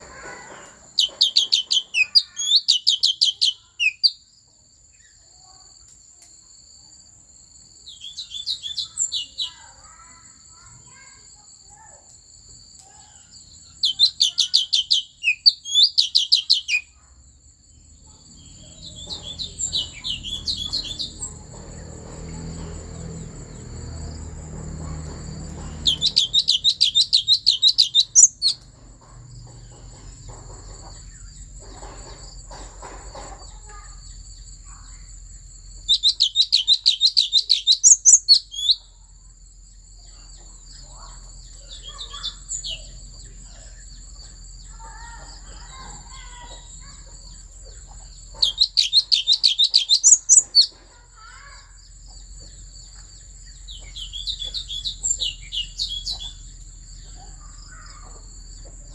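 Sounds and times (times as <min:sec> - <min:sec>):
soft bird calls: 0:00.0 - 0:07.0, 0:07.6 - 0:58.9
songbird singing repeated high notes: 0:00.9 - 0:04.3, 0:07.8 - 0:11.4, 0:12.9 - 0:17.1, 0:17.7 - 0:22.4, 0:25.6 - 0:28.6, 0:35.7 - 0:39.0, 0:40.0 - 0:58.9.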